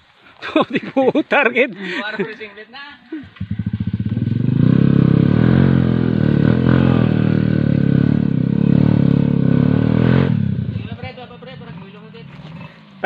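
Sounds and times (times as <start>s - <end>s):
dirt bike engine revving: 3.2s - 13.0s.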